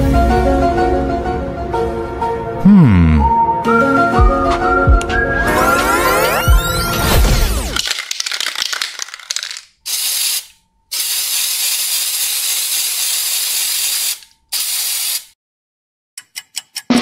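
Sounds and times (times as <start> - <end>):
spray can rattle clicking: 7.8 - 15.2
spray can hissing: 8.1 - 15.4.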